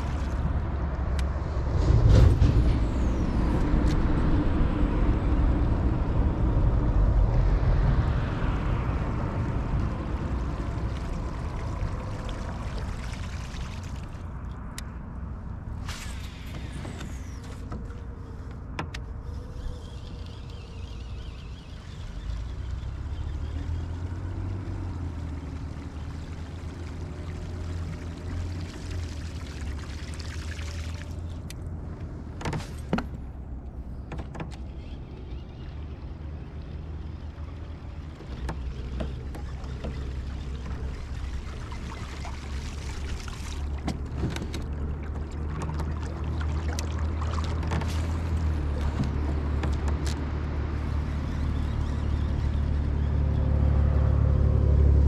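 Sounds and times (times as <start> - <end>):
steady low rumble: 0.0 - 23.2
water sloshing against hull: 8.5 - 54.0.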